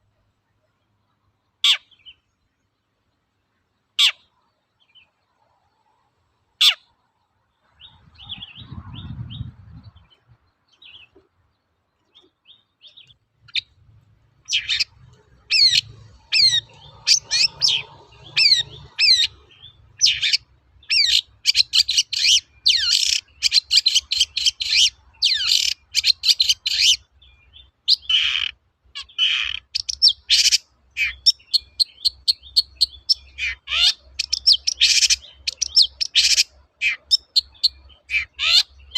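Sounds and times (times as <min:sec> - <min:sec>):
bird singing sharp chirps: 0:07.6 - 0:11.2, 0:14.4 - 0:38.9
short low rumble: 0:07.9 - 0:10.3.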